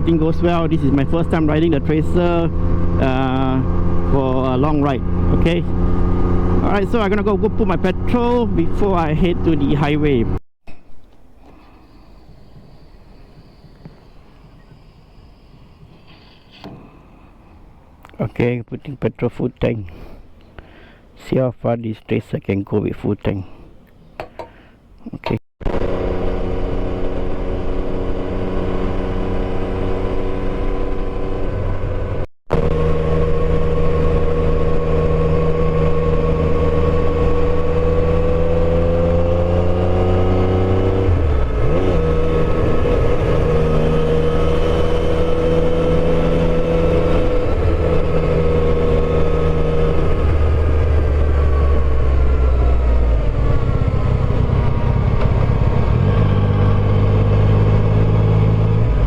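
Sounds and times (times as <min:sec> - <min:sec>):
motorcycle engine running: 0:25.7 - 0:59.0.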